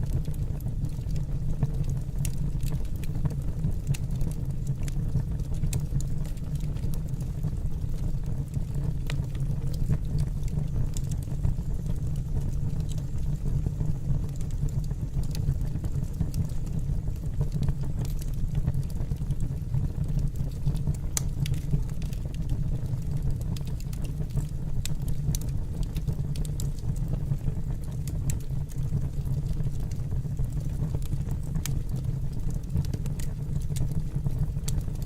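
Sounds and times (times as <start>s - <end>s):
fire crackling and popping: 0.0s - 35.0s
fire rumbling in a fireplace: 0.0s - 35.0s.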